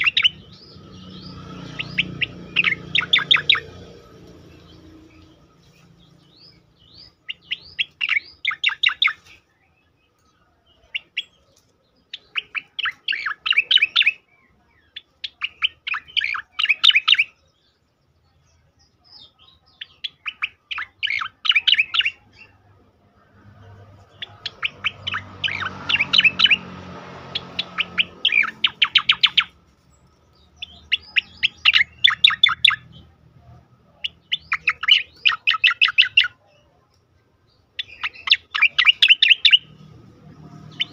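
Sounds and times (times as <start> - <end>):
bird singing rattling bursts: 0.0 - 9.4, 12.1 - 14.3, 23.9 - 33.0, 34.0 - 36.3, 37.8 - 40.9.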